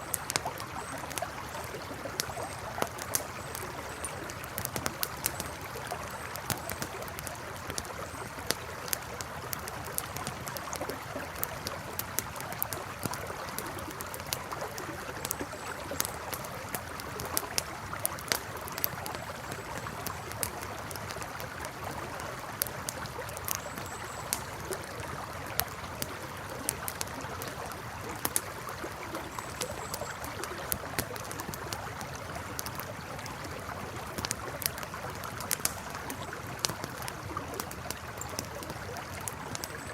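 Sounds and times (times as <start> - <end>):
campfire crackling and popping: 0.0 - 39.9
river flowing: 0.0 - 39.9.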